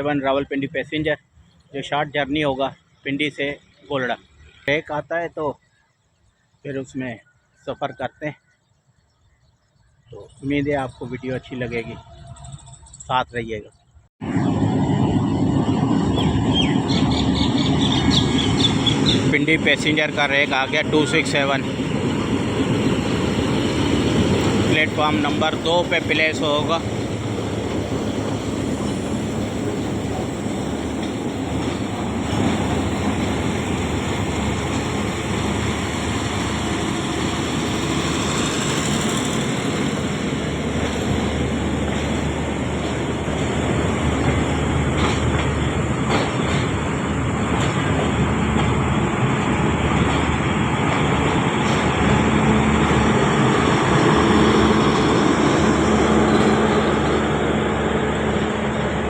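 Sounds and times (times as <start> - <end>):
engine hum: 14.2 - 59.0
train coaches rumbling: 14.2 - 59.0.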